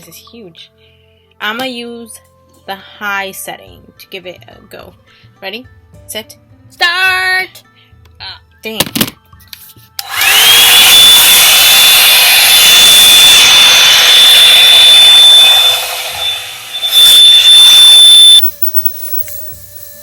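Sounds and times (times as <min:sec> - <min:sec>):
hair dryer blowing with whine: 0:10.0 - 0:18.1.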